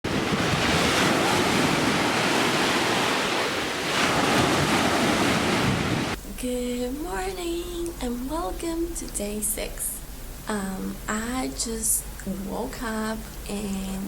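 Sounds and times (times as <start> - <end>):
wind buffeting microphone: 0.0 - 6.2
surf washing onto beach: 0.1 - 6.2.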